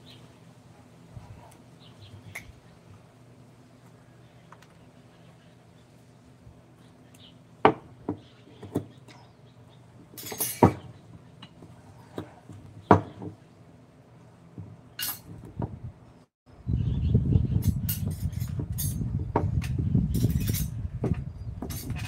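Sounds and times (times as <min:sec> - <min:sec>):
scraping rustle: 0:20.0 - 0:22.0.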